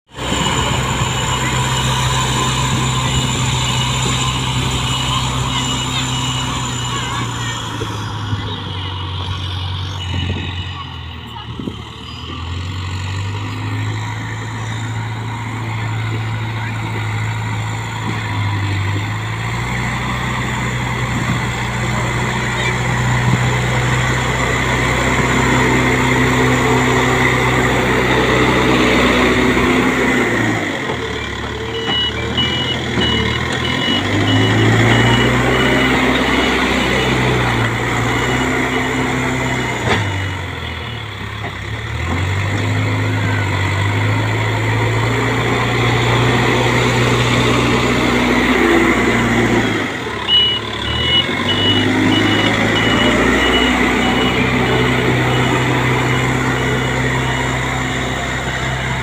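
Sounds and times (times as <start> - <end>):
reversing alarm beeping: 0.1 - 21.3, 31.1 - 41.3, 43.0 - 58.8
diesel machine engine under load: 0.1 - 59.0.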